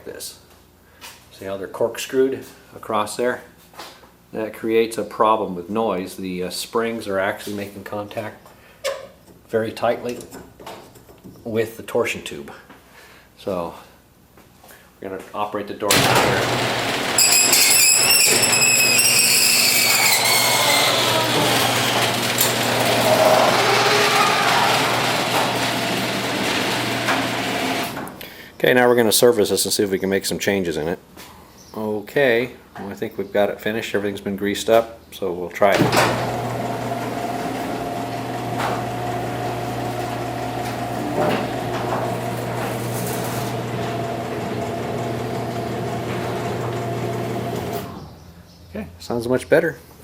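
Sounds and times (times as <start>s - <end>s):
garage door opener motor hum: 15.9s - 28.2s, 35.8s - 48.3s
loud metallic squeal: 17.2s - 25.3s.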